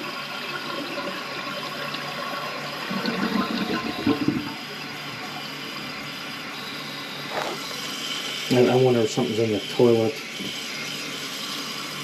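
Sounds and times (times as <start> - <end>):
toilet flushing: 0.0 - 12.0
water running: 0.0 - 12.0.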